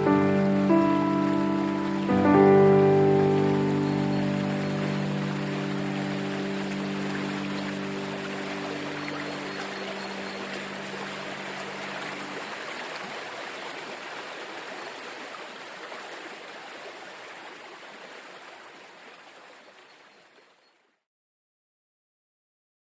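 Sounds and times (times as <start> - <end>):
soft music: 0.0 - 12.6
running water: 0.0 - 21.0.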